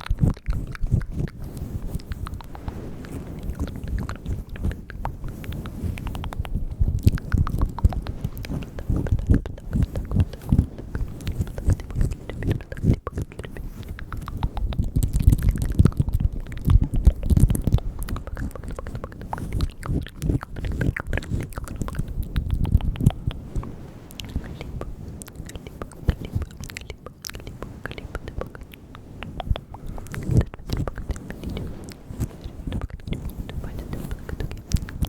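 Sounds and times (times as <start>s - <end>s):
wet lip and tongue clicks: 0.0s - 35.0s
soft low thumps: 0.1s - 25.0s.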